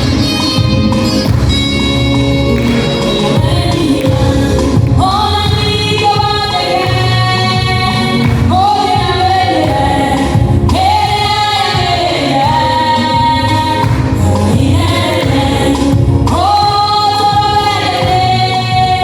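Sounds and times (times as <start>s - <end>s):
gospel song with band: 0.0s - 19.0s.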